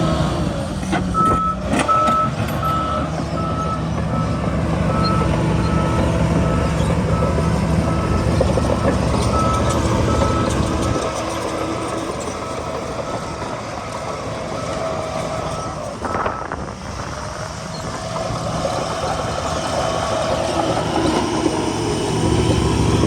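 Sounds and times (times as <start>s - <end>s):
heavy diesel machinery droning: 0.0s - 23.0s.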